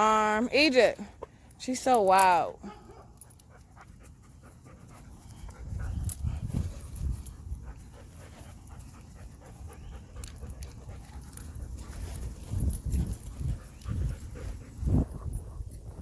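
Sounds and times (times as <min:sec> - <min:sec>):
dog panting: 0:02.9 - 0:16.0.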